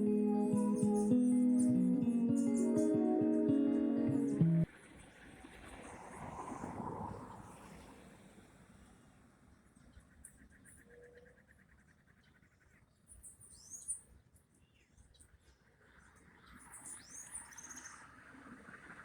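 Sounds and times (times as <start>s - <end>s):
bird trill: 0.0s - 4.6s.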